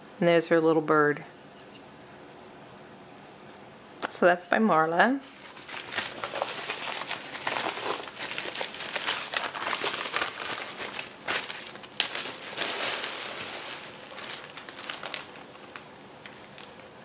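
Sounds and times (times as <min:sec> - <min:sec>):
packaging crinkling: 0:05.2 - 0:17.0.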